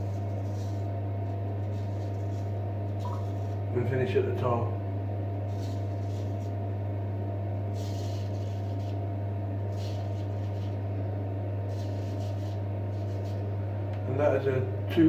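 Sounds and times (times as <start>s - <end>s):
steady low hum: 0.0s - 15.0s
razor scraping beard: 5.5s - 6.6s, 7.9s - 9.0s, 9.6s - 10.8s, 11.7s - 13.5s.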